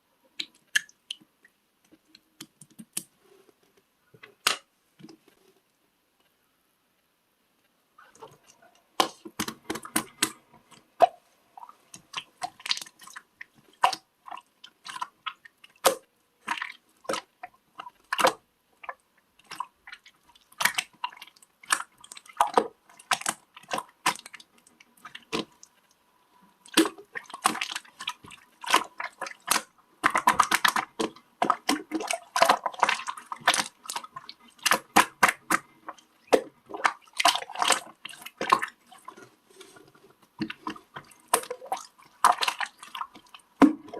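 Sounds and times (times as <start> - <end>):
slime squishing and popping: 26.6 - 38.8.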